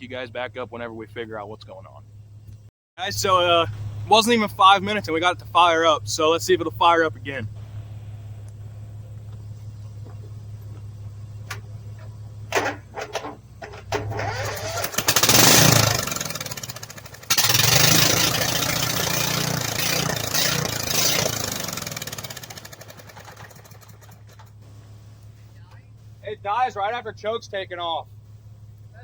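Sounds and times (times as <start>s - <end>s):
small engine starting and running: 7.4s - 27.5s.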